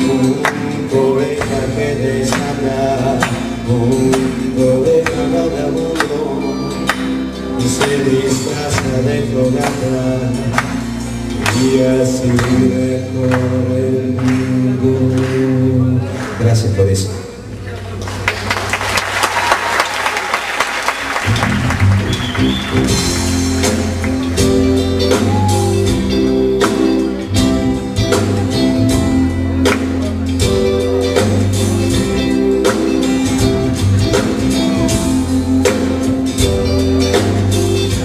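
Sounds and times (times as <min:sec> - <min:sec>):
live rock band playing: 0:00.0 - 0:16.4, 0:20.2 - 0:38.0
audience applause: 0:17.8 - 0:24.4.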